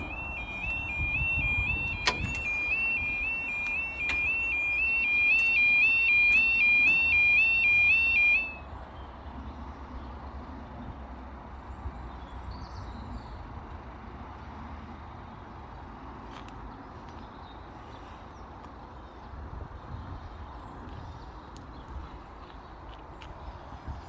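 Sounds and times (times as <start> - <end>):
two-tone crossing warning alarm: 0.0 - 8.7.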